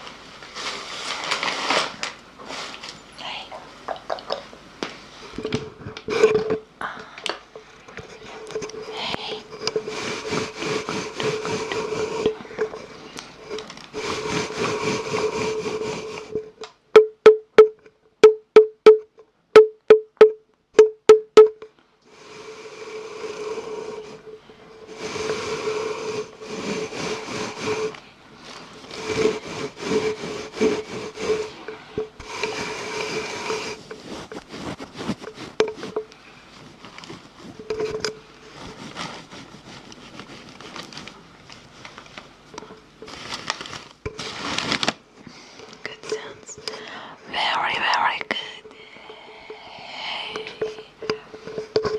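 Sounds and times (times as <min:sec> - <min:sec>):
rubbing and scratching: 0:00.0 - 0:02.9, 0:08.0 - 0:16.6, 0:23.3 - 0:45.0.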